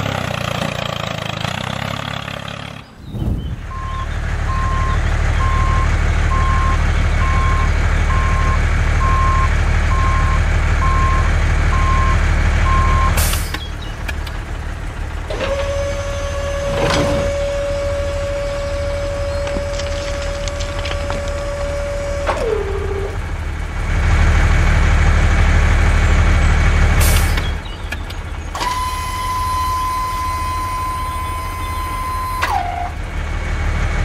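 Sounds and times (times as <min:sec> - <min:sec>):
truck engine running: 0:00.0 - 0:34.0
reversing alarm beeping: 0:03.7 - 0:13.2, 0:28.6 - 0:32.5.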